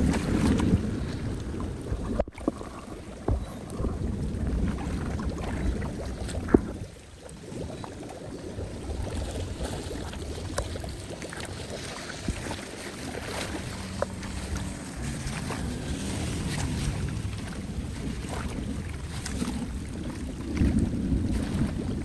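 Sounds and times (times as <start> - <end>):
water rushing into a drain: 0.0 - 13.8
wind buffeting microphone: 0.0 - 22.0.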